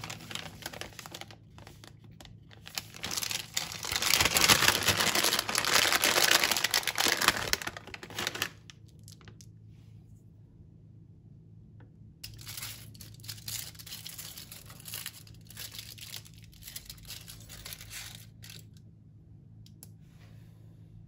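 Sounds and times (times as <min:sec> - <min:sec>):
crinkling and tearing material: 0:00.0 - 0:09.4, 0:12.4 - 0:18.6
low steady hum: 0:00.0 - 0:21.0.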